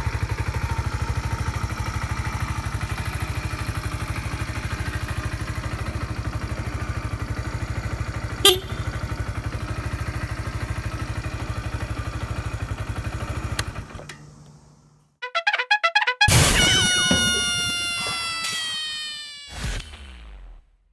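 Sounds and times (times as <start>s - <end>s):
motorcycle engine idling: 0.0s - 15.0s
brass-like musical sting: 15.2s - 17.4s
short bright tones: 15.2s - 19.9s.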